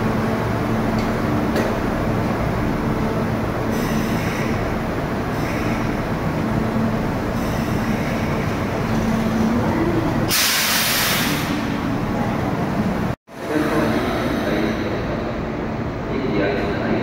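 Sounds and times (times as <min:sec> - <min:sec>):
hissing air burst: 0:10.3 - 0:11.7.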